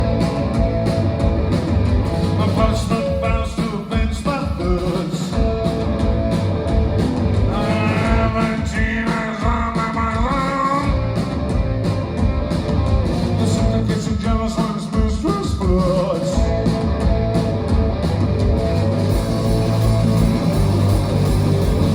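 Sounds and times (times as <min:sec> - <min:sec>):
rock band playing live: 0:00.0 - 0:21.9
person singing: 0:07.5 - 0:11.0.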